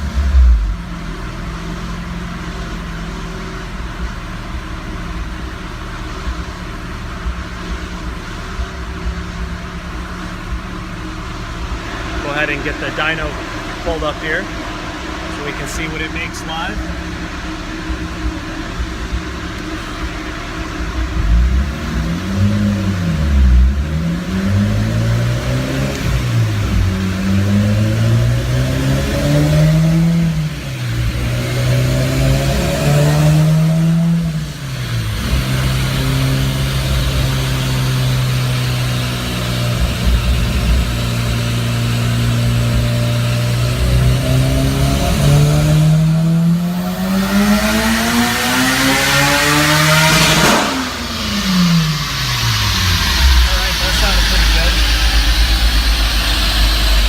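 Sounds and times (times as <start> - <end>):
car engine idling: 0.0 - 57.0
cooling fans blowing: 7.2 - 37.9
short loud low burst: 50.1 - 57.0.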